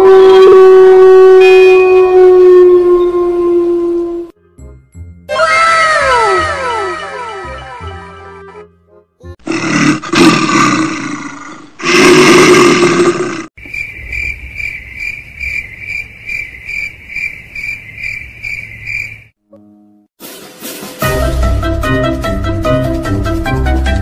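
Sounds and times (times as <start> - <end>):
loud roar sound effect: 9.4 - 13.5
crickets chirping: 13.6 - 19.3.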